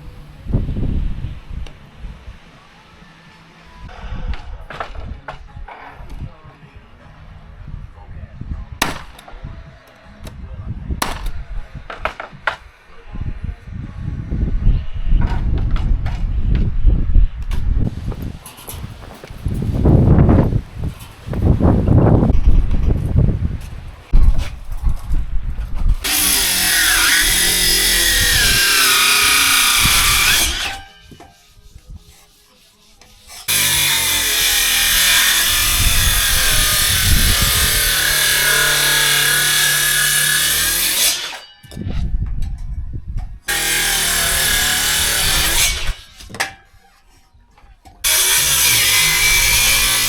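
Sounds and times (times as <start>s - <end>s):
heavy low rumble: 0.0s - 2.5s, 13.1s - 26.0s
power tool cutting wood: 26.0s - 31.0s, 33.4s - 41.4s, 43.5s - 46.2s, 48.0s - 50.0s.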